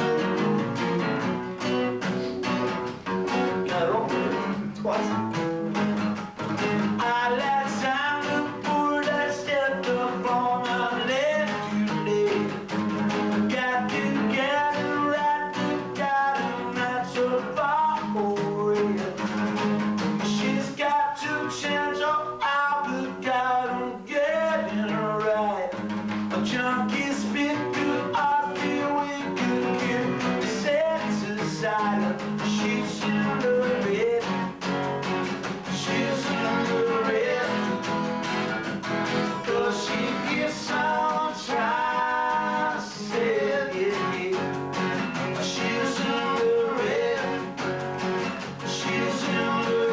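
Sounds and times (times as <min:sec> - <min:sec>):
guitar accompaniment: 0:00.0 - 0:49.9
person singing: 0:06.9 - 0:12.7, 0:13.4 - 0:19.3, 0:20.2 - 0:34.6, 0:35.5 - 0:38.0, 0:39.2 - 0:47.8, 0:48.4 - 0:49.9.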